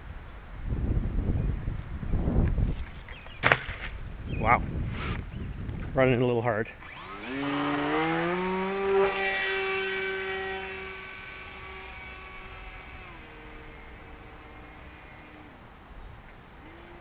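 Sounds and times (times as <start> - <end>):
electric motor and propeller whining: 6.8 - 17.0.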